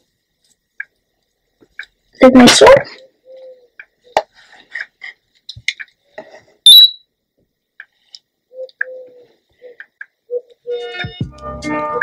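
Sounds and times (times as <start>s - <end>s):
sharp high chirp: 6.7s - 7.1s.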